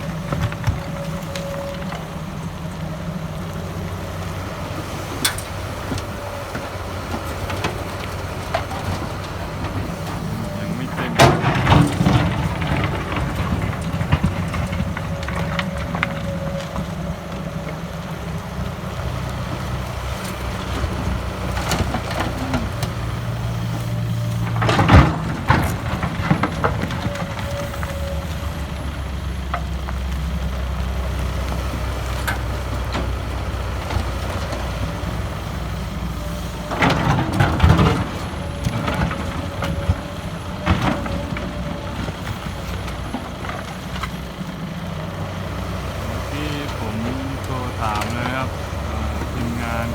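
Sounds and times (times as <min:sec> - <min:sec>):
excavator diesel engine under load: 0:00.0 - 0:49.9
soil dropping into truck bed: 0:06.6 - 0:15.5.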